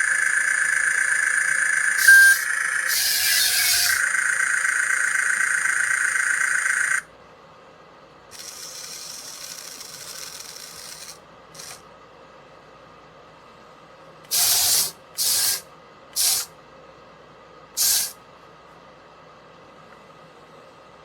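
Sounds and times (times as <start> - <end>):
rubbing whirring noise: 0.0 - 4.1
toy gear motors whining: 0.0 - 7.0, 8.3 - 11.8, 14.3 - 15.6, 16.2 - 16.5, 17.8 - 18.2
short blip: 2.0 - 2.5.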